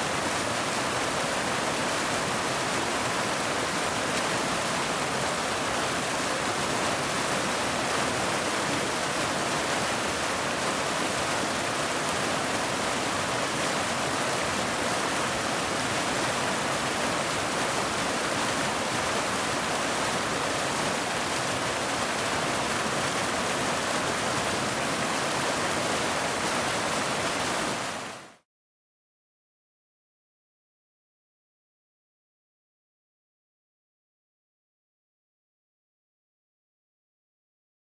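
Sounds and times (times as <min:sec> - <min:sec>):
steady rain: 0:00.0 - 0:28.4.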